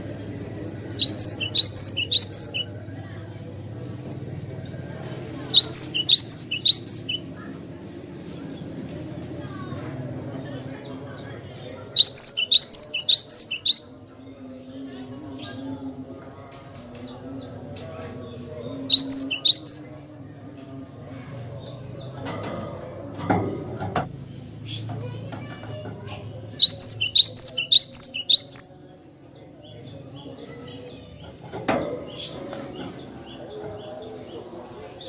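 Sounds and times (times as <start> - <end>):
bird chirping: 0.2 - 2.8, 5.2 - 7.3, 10.9 - 14.0, 17.4 - 20.0, 26.5 - 28.9
faint bird notes: 0.9 - 2.7, 5.2 - 7.3, 11.4 - 13.8, 18.8 - 19.9, 26.1 - 28.8.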